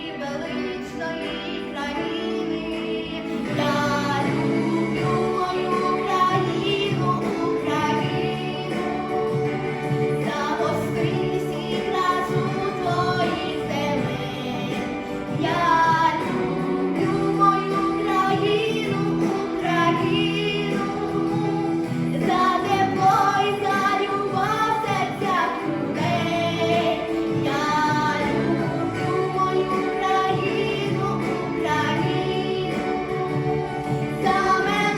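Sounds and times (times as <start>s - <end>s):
instrumental accompaniment: 0.0s - 34.9s
woman singing: 0.0s - 34.9s.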